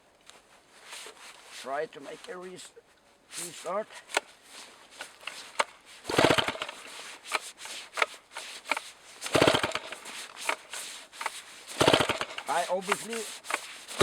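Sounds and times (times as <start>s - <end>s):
small handling clicks: 4.0s - 14.0s
chainsaw engine cranking: 5.0s - 14.0s.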